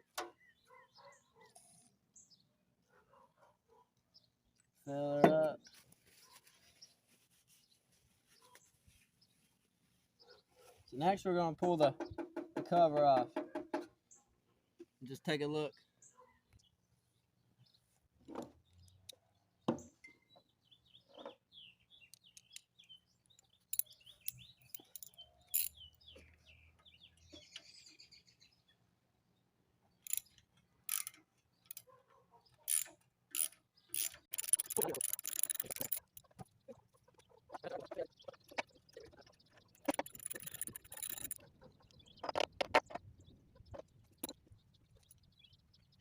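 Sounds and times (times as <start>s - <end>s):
birds chirping: 0.0s - 46.0s
hand tools clicking and rattling: 23.7s - 25.8s, 30.0s - 31.9s, 32.7s - 36.6s, 39.0s - 43.0s.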